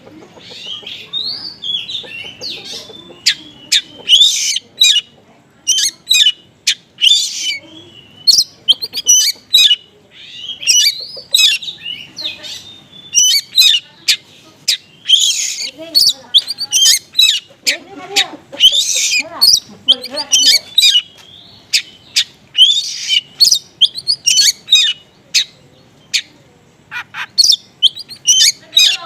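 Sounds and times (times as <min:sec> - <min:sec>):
bird singing chirps and whistles: 0:07.0 - 0:13.8, 0:14.7 - 0:17.4, 0:18.6 - 0:25.5, 0:27.3 - 0:29.0.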